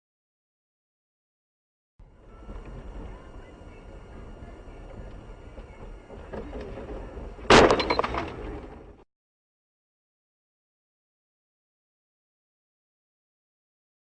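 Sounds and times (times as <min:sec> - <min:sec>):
loud collision bang: 0:07.5 - 0:08.4.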